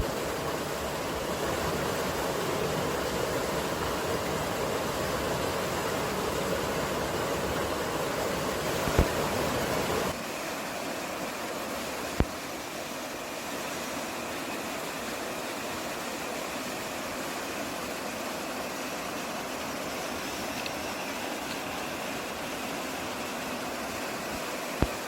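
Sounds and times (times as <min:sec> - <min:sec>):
running water: 0:00.0 - 0:25.0
wind: 0:00.0 - 0:25.0.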